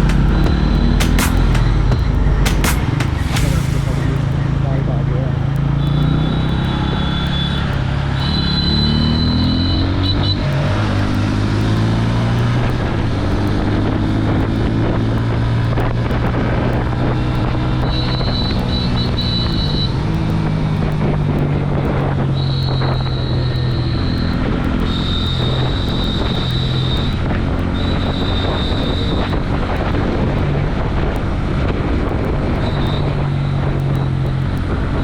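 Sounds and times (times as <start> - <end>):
high steady tone: 0.0 - 11.9
motorcycle engine revving: 0.0 - 35.0
wind noise: 0.0 - 35.0.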